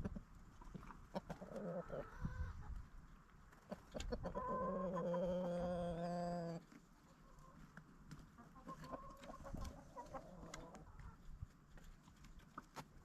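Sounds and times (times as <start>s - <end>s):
chickens clucking: 0.0s - 12.9s
long drawn-out chicken call: 1.2s - 2.7s, 3.7s - 6.6s.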